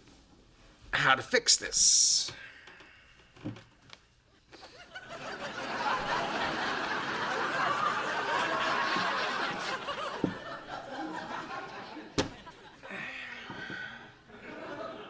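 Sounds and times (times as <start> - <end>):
studio audience laughing: 4.6 - 12.8, 14.3 - 15.0.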